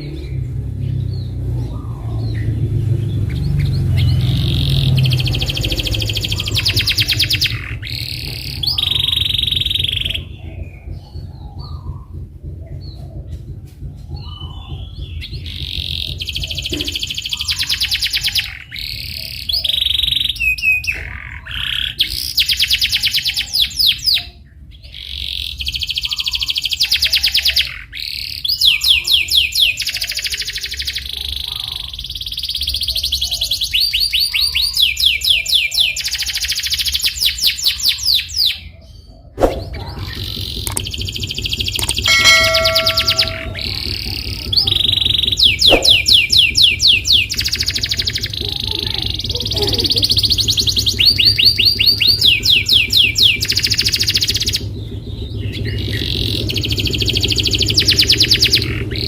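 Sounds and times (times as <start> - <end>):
canary singing trills: 39.0 - 44.1
low steady hum: 41.8 - 44.2.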